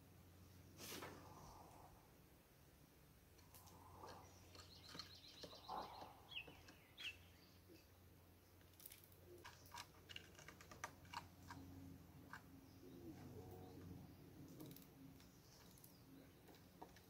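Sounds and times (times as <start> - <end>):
beaks pecking on wood: 3.4 - 7.3, 8.6 - 12.9
small birds chirping: 3.4 - 17.0.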